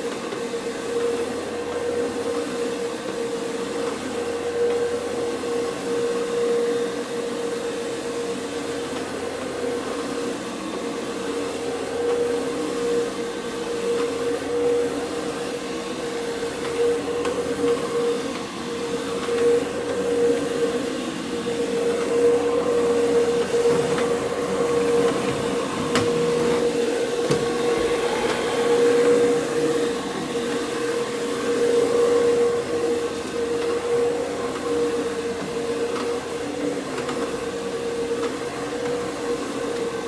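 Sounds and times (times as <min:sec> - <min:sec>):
carpet machine motor hum: 0:13.9 - 0:37.5.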